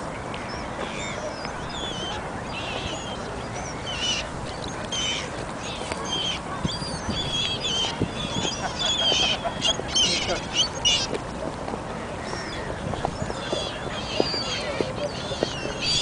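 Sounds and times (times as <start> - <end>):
birds chirping: 0.0 - 11.4, 12.0 - 16.0.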